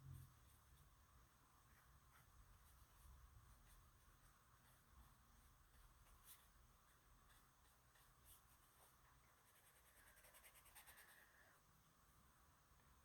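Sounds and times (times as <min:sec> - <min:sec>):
pencil scratching on paper: 0:04.6 - 0:11.5.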